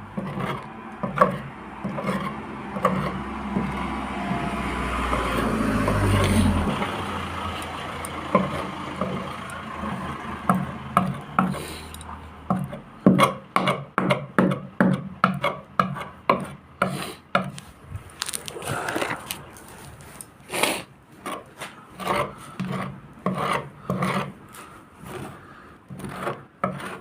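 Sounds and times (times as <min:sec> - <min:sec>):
low motor hum: 0:00.0 - 0:12.5.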